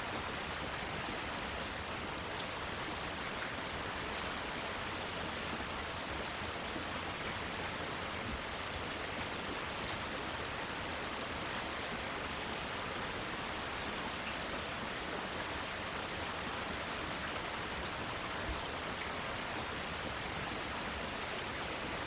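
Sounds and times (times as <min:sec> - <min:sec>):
rain falling on plants: 0:00.0 - 0:22.0.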